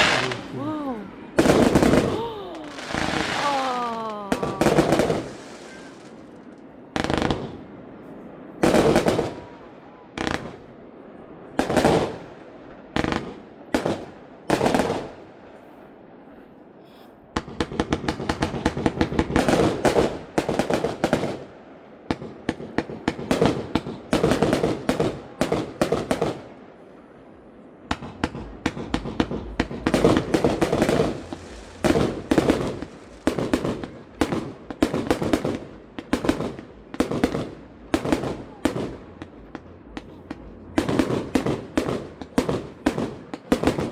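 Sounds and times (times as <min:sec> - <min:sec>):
rapid crackling firework bursts: 0:00.0 - 0:07.6, 0:08.6 - 0:09.6, 0:17.4 - 0:26.6, 0:27.9 - 0:43.9
firework bangs: 0:00.0 - 0:07.8, 0:08.6 - 0:10.7, 0:11.6 - 0:15.3, 0:17.4 - 0:26.6, 0:27.8 - 0:43.9.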